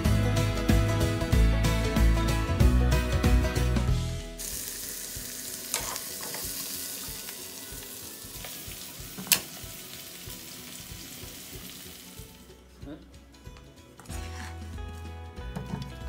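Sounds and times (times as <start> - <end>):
potatoes sizzling in oil: 4.4 - 12.4.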